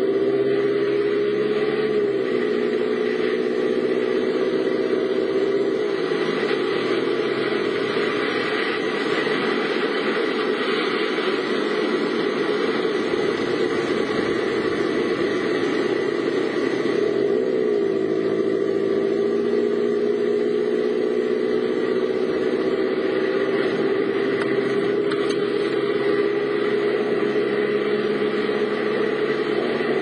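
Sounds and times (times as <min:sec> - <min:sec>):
car engine running: 0:00.0 - 0:30.0
rushing noise: 0:00.0 - 0:30.0.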